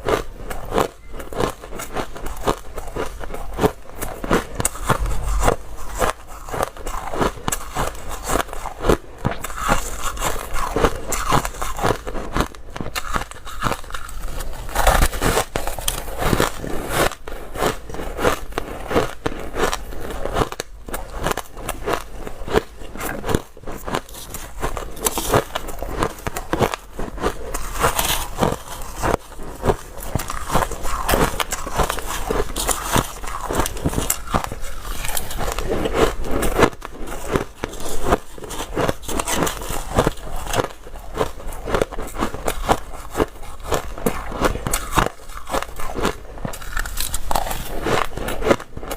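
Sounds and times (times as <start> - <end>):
ice being chewed: 0.0 - 48.9.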